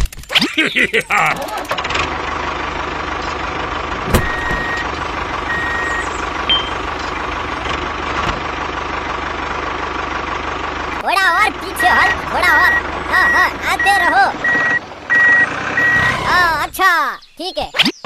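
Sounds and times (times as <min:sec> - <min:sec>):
small tractor running: 0:01.1 - 0:16.8
short electronic beeps: 0:04.2 - 0:04.9, 0:05.5 - 0:06.8, 0:11.9 - 0:16.2.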